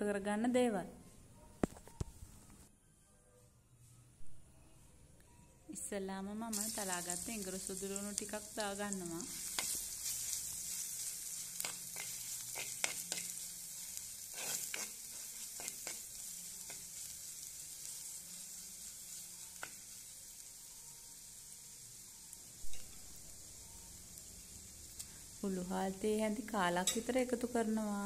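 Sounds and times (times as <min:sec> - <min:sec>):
garlic sizzling in oil: 0:06.4 - 0:28.0
spoon scraping a clay pot: 0:11.6 - 0:13.4, 0:14.2 - 0:16.9.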